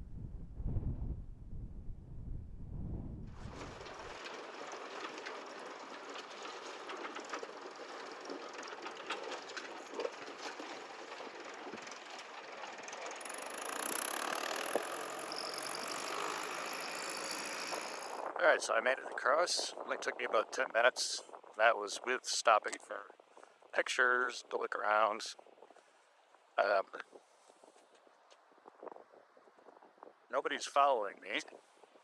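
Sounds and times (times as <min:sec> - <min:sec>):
tractor engine running: 0:03.4 - 0:18.6.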